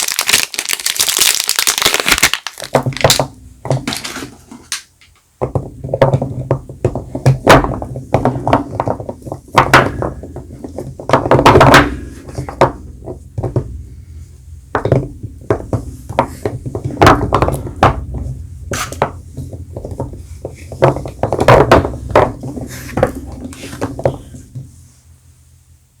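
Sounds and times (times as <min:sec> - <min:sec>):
wrappers crinkling: 0:00.0 - 0:04.5
soap bars knocking: 0:02.5 - 0:24.8.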